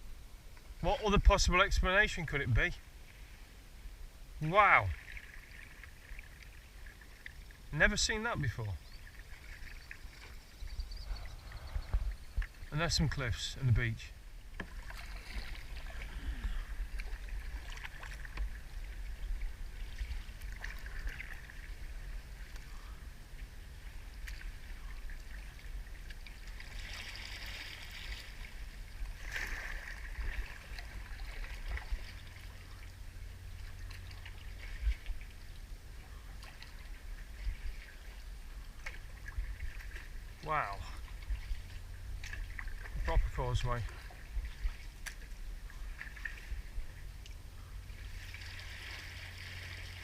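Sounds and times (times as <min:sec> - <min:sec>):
paddle splashing water: 0:04.4 - 0:50.0
steady low rumble: 0:10.0 - 0:26.3, 0:28.2 - 0:50.0.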